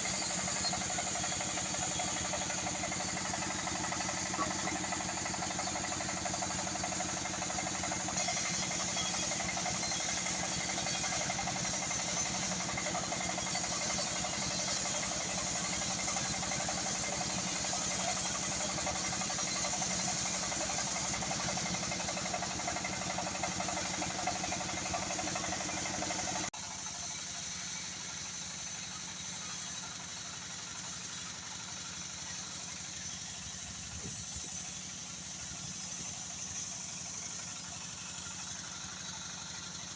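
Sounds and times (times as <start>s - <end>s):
high saw noise: 0.0s - 5.9s, 6.5s - 27.9s
sawmill motor hum: 0.0s - 39.9s.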